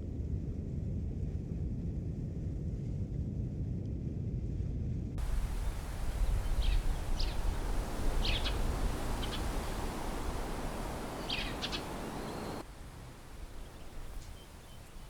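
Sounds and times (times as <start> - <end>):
wind rumble on microphone: 0.0 - 15.0
birds chirping: 5.2 - 15.0.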